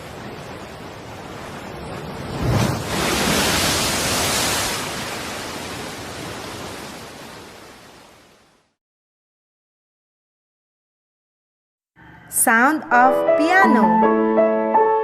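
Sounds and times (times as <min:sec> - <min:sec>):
wave breaking: 0:00.0 - 0:08.4.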